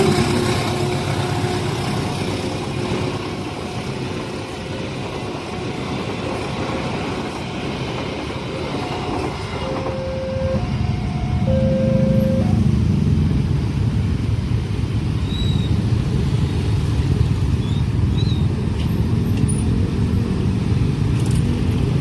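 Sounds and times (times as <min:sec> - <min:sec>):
train wheels on rails: 0:00.0 - 0:22.0
short steady tones: 0:09.6 - 0:12.7.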